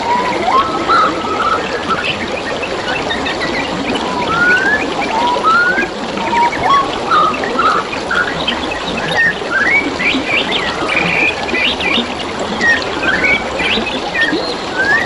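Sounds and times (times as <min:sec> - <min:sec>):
birds chirping and whistling: 0:00.0 - 0:15.0
water trickling: 0:00.0 - 0:15.0.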